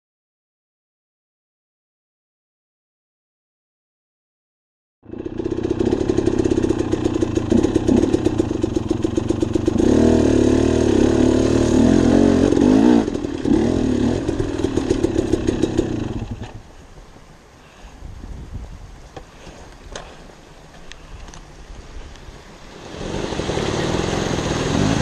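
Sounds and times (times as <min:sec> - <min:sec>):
dirt bike engine revving: 0:05.0 - 0:16.6, 0:22.6 - 0:25.0
quiet hiss: 0:14.2 - 0:25.0.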